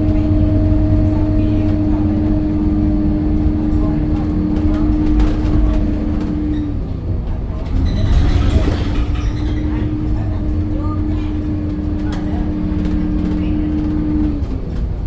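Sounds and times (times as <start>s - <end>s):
bus diesel engine rumbling: 0.0s - 15.0s.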